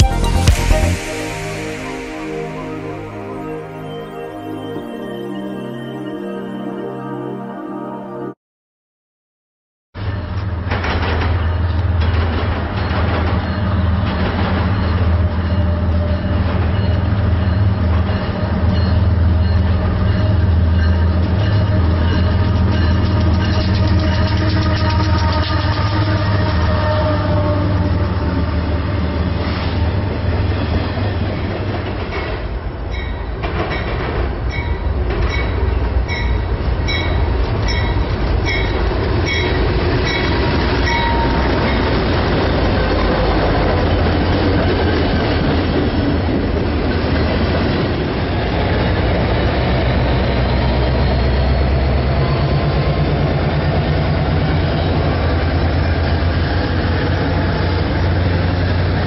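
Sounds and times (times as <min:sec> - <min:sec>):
high ding: 0:00.0 - 0:07.4
freight train rumbling and clattering: 0:10.3 - 0:59.0
diesel locomotive engine throbbing: 0:33.5 - 0:59.0.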